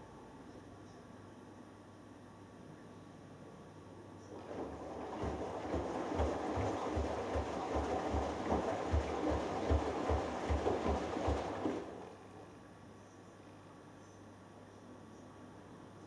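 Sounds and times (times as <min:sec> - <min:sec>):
water sloshing in washing machine: 0:04.3 - 0:12.4
low thumps of washing machine drum: 0:04.4 - 0:12.0.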